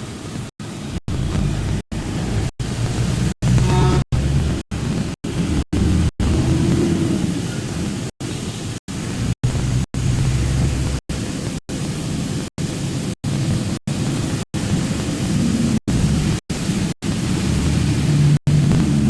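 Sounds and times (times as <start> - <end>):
low rumble: 0.6 - 7.4, 9.1 - 11.3, 17.2 - 19.0
loud steady hiss: 7.4 - 19.0.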